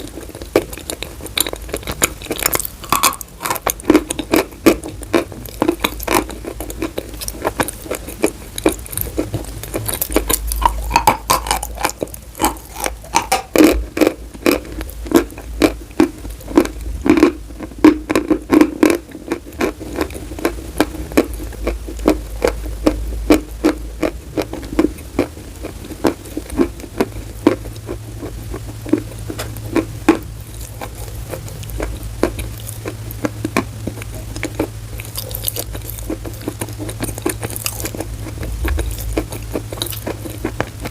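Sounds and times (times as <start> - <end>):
chalk crunching while chewed: 0.0 - 40.9
low steady hum: 0.0 - 40.9.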